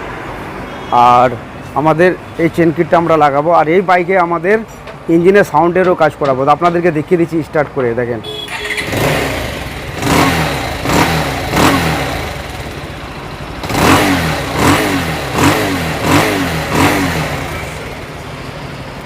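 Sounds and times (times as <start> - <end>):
motorcycle engine idling and revving: 8.3 - 19.0.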